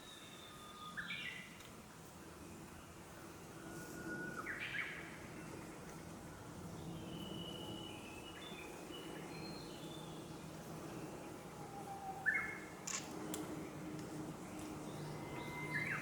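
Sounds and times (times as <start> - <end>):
faint low background noise: 0.0 - 16.0
wild birds calling: 7.1 - 13.8, 14.5 - 16.0.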